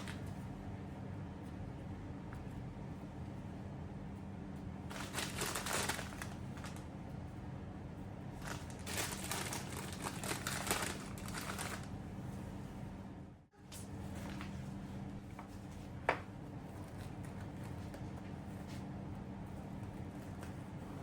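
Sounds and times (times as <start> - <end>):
steady low hum: 0.0 - 21.0
crinkling and rustling: 4.9 - 6.9, 8.4 - 12.0, 13.8 - 15.9.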